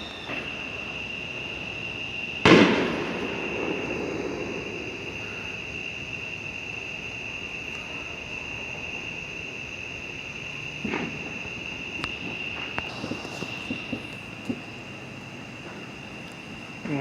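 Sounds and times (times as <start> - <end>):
crickets trilling: 0.0 - 17.0
firework rumble: 0.0 - 17.0
distant firework pop: 2.4 - 4.4, 12.0 - 14.6.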